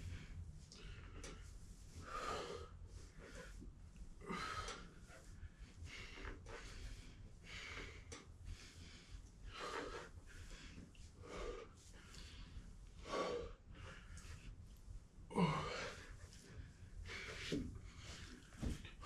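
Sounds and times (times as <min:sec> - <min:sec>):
person breathing hard: 0:00.0 - 0:14.6, 0:15.3 - 0:19.0.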